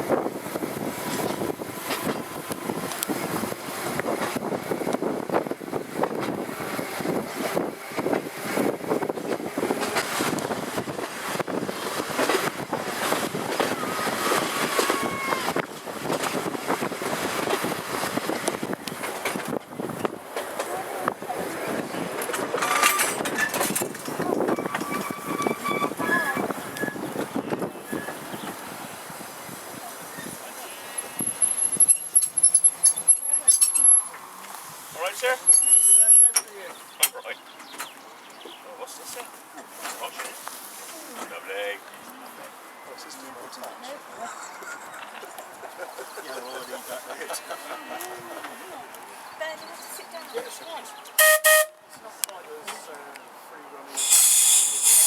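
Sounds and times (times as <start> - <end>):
wind on microphone: 0.0 - 20.3, 21.0 - 30.4
tram rumbling along track: 0.0 - 53.0, 53.9 - 55.0
wheels clicking and knocking: 22.0 - 28.7, 31.2 - 34.2
faint squeal: 24.5 - 27.0, 35.5 - 36.3.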